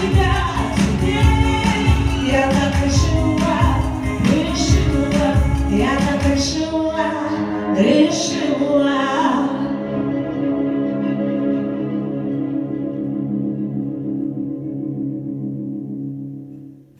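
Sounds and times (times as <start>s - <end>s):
steady beat: 0.0s - 6.4s
person singing: 0.0s - 12.4s
held chords: 0.0s - 16.9s.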